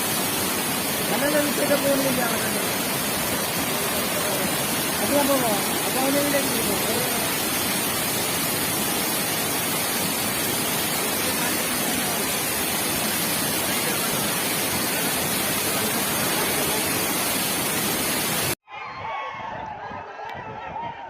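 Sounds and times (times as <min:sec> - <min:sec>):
floodwater rushing: 0:00.0 - 0:18.6.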